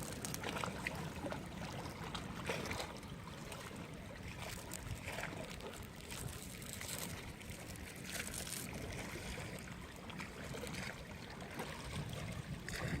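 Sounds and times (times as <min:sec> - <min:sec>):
sea water washing: 0:00.0 - 0:13.0
wind buffeting microphone: 0:11.9 - 0:13.0.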